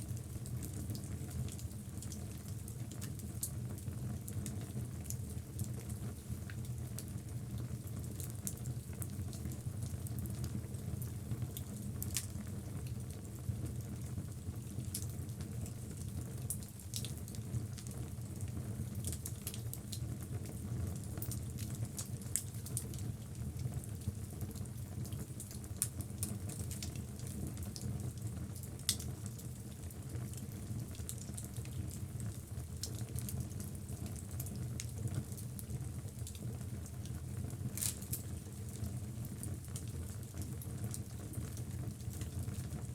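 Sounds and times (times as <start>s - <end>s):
logs burning with crackles: 11.6s - 13.2s, 19.0s - 42.9s.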